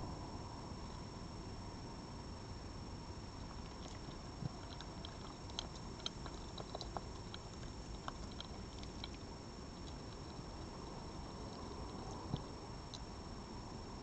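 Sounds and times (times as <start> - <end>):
steady background hiss: 0.0 - 14.0
animal chewing food: 3.4 - 13.2.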